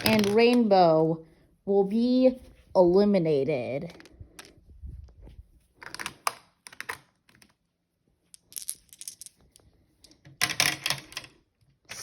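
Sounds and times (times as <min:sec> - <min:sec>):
marbles clicking and rattling: 0:08.3 - 0:11.3.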